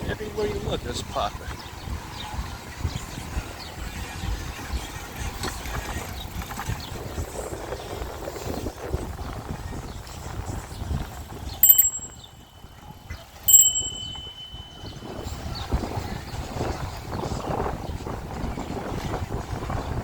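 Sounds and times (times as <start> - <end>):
wind on microphone: 0.0 - 12.8, 13.5 - 20.0
bicycle bell ringing: 11.6 - 12.8, 13.5 - 15.5.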